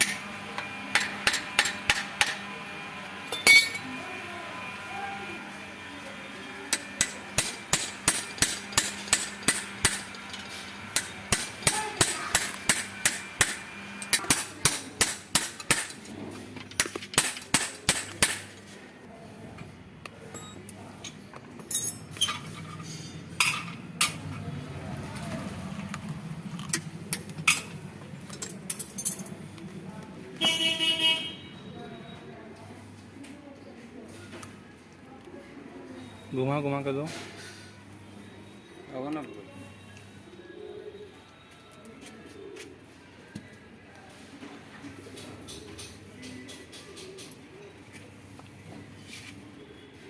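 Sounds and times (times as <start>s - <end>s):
hammer striking metal: 0.9s - 2.4s, 6.7s - 16.0s, 16.8s - 18.5s.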